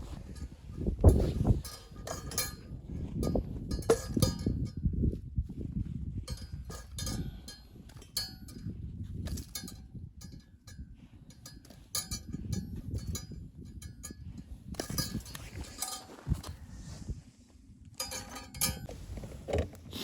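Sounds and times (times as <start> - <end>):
metal objects clinking: 1.2 - 2.7, 14.8 - 16.5, 18.0 - 18.9.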